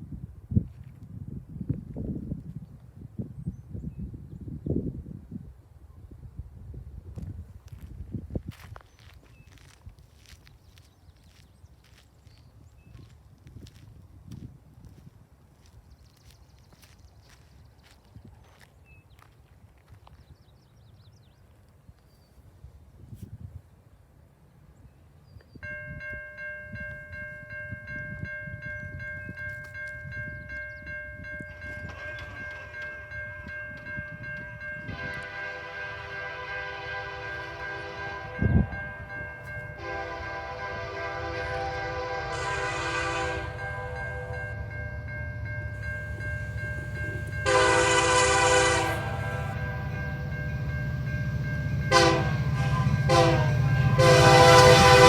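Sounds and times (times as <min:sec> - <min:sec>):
steady high tone: 0:31.2 - 0:55.0
locomotive air horn blasts: 0:34.8 - 0:38.8, 0:39.7 - 0:44.7, 0:47.1 - 0:55.0.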